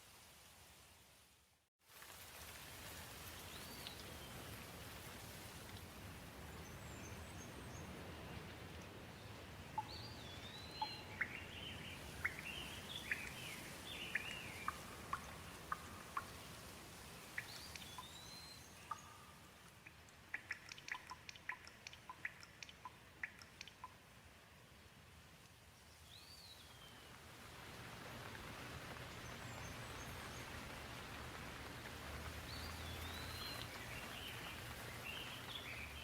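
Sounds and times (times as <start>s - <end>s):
gentle rain hiss: 0.0s - 36.0s
water dripping: 1.9s - 6.6s, 9.7s - 24.2s, 27.7s - 36.0s
bird chirping: 9.8s - 16.5s, 17.3s - 24.0s, 32.5s - 36.0s.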